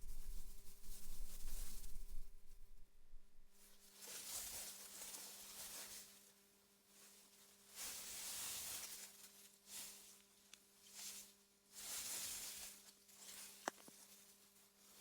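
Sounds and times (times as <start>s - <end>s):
wind rustling grass: 0.0s - 3.8s.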